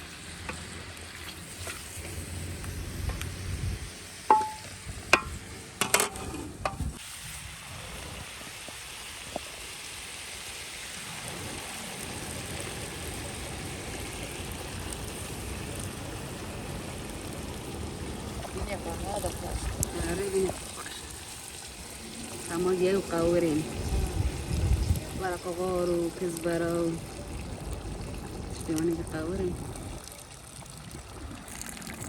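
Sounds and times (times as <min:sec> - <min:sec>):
food sizzling in pot: 0:00.0 - 0:30.0
utensil clanking against pot: 0:04.3 - 0:06.8.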